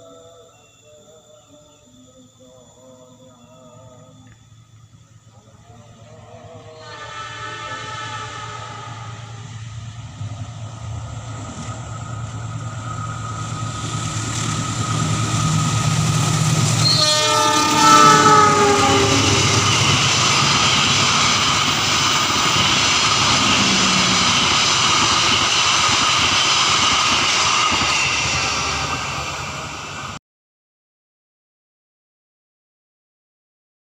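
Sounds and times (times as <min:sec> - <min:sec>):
train engine hum: 0:03.9 - 0:30.2
train horn: 0:05.9 - 0:09.9, 0:15.1 - 0:21.5, 0:22.5 - 0:25.3.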